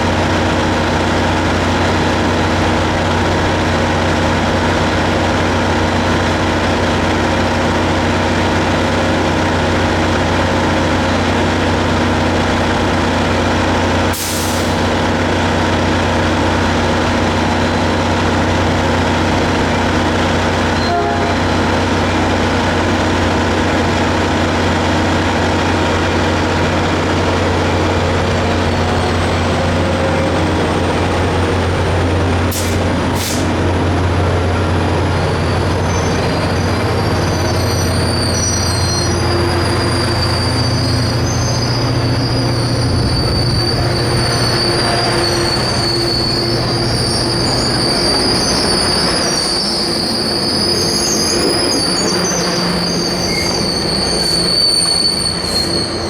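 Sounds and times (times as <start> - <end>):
locomotive engine humming: 0.0 - 56.0
train wheels squealing on rails: 0.1 - 56.0.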